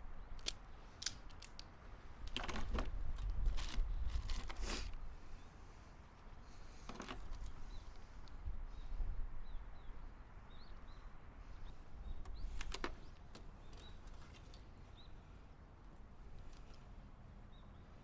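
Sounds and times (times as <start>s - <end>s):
sharp clicks: 0.4s - 3.8s
small bird chirping: 6.4s - 15.4s, 16.3s - 18.0s.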